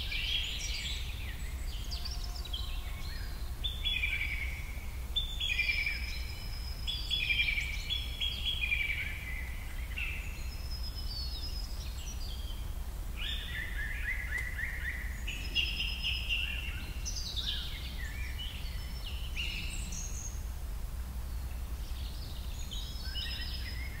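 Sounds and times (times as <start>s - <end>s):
birds chirping and singing: 0.0s - 20.4s, 21.2s - 24.0s
steady low hum: 0.0s - 24.0s.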